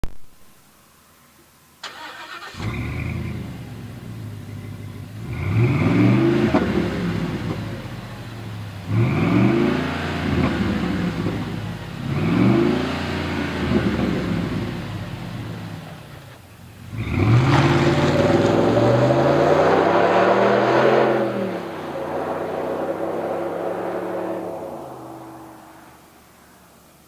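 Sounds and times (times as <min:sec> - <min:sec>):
truck engine idling and revving: 0:02.0 - 0:27.0.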